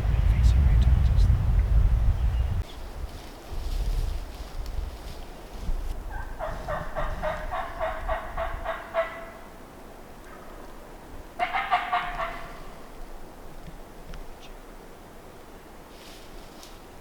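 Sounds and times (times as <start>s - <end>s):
wind rumble on microphone: 0.0s - 9.0s
wild turkey calls: 6.1s - 9.5s, 11.4s - 12.9s.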